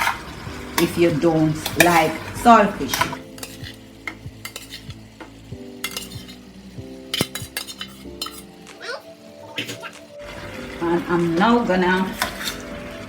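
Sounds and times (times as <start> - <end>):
spoon scraping and knocking a pot: 0.0 - 8.8, 12.2 - 12.6
light sizzle in oil: 0.0 - 13.0.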